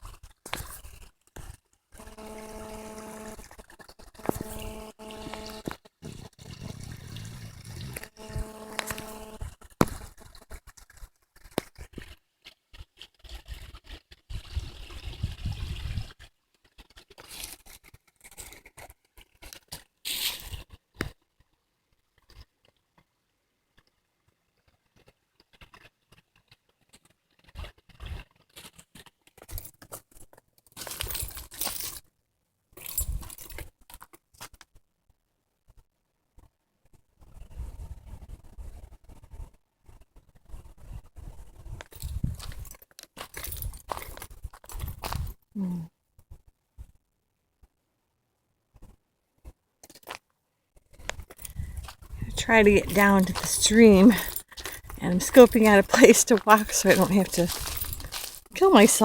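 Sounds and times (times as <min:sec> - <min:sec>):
footsteps on dry leaves: 0:52.8 - 0:59.0.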